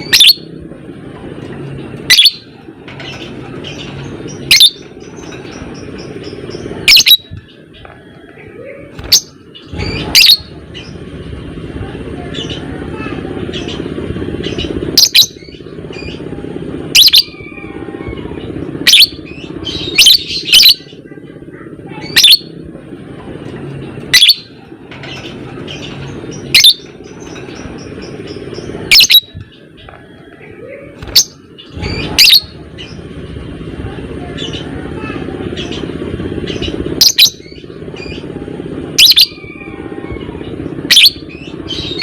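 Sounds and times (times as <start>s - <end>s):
lovebird shrill chirps: 2.1s - 2.4s, 31.1s - 32.5s.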